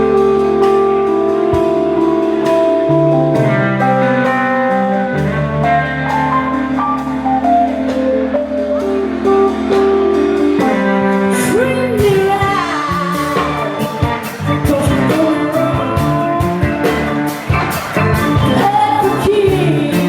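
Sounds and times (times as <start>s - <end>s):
bass guitar: 0.0s - 20.0s
drums: 0.0s - 20.0s
electric guitar: 0.0s - 20.0s
person singing: 11.2s - 20.0s.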